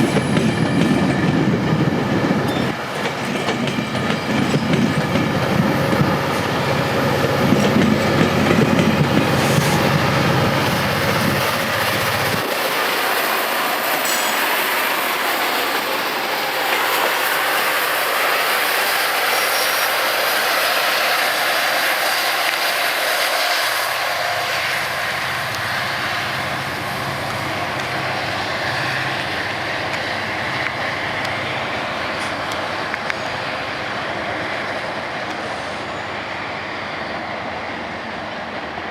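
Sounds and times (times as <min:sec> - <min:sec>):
train wheels clattering: 0:00.0 - 0:20.0.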